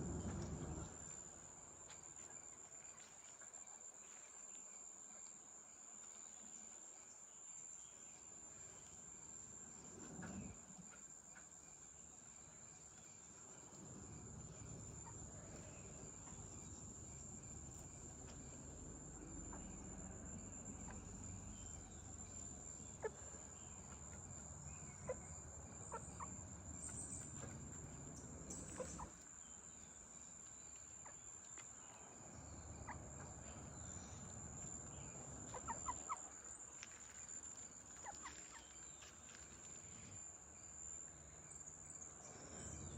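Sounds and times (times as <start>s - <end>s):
low rumble: 0.0s - 1.3s
chickens clucking: 22.9s - 24.3s, 28.5s - 29.3s, 35.4s - 36.4s.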